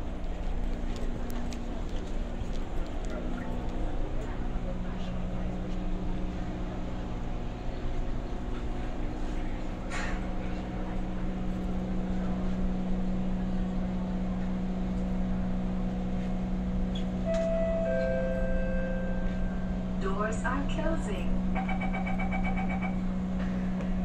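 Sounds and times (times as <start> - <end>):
train equipment hum: 0.0 - 24.0
brief click: 16.9 - 18.2
two-tone door chime: 17.2 - 20.0.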